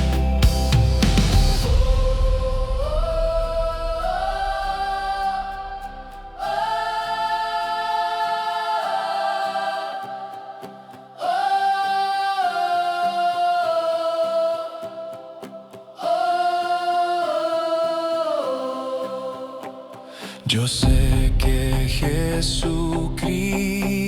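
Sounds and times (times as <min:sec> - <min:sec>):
choir singing held notes: 0:00.0 - 0:24.0.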